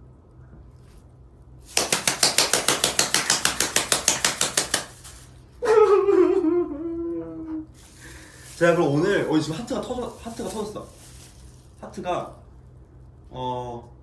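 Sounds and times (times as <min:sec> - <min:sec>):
rapid knocking of kitchenware: 0:01.7 - 0:05.0.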